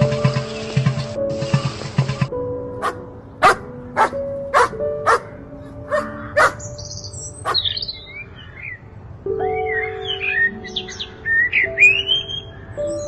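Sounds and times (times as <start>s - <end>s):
background music: 0.0s - 8.5s, 9.2s - 13.0s
dog barking: 2.8s - 5.3s, 5.9s - 6.6s.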